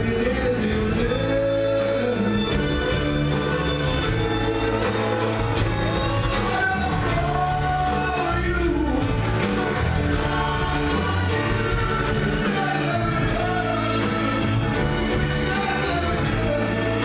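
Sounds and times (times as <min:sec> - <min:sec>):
live rock band playing: 0:00.0 - 0:17.0
person singing: 0:00.0 - 0:17.0.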